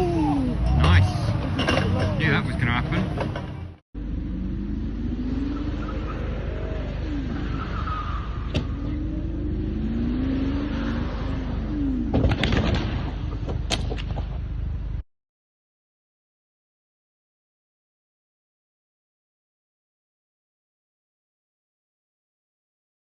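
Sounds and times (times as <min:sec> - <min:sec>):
car engine rising and falling: 0:00.0 - 0:15.0
sharp bangs: 0:12.1 - 0:14.5.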